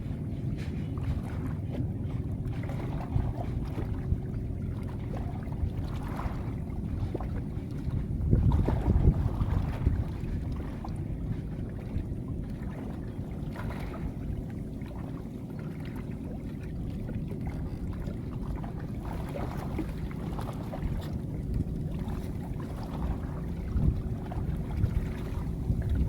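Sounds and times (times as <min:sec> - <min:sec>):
boat engine rumble: 0:00.0 - 0:26.0
faint constant hum: 0:00.0 - 0:26.0.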